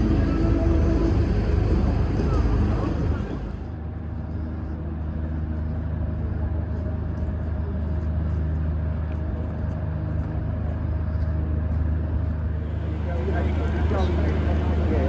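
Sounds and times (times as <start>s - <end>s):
vehicle motor drone: 0.0s - 4.7s, 12.5s - 15.0s
faint high whine: 0.0s - 5.8s, 12.6s - 15.0s.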